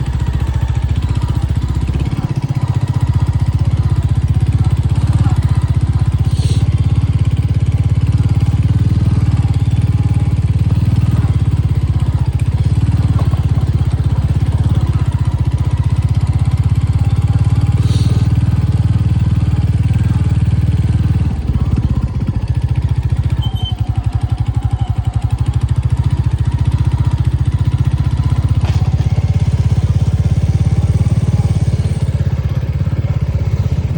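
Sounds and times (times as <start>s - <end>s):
motor vehicle rumbling: 0.0s - 33.9s.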